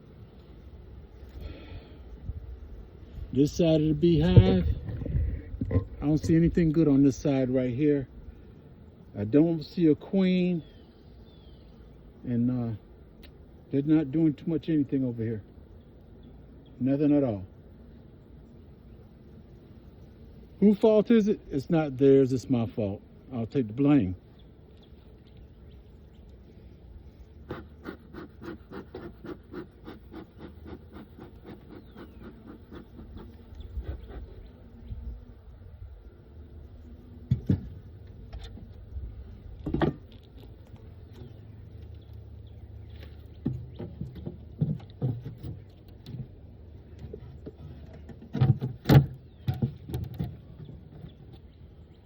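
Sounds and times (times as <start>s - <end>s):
knocks of beehive frames handled: 4.1s - 6.7s, 37.2s - 38.8s, 43.3s - 51.2s.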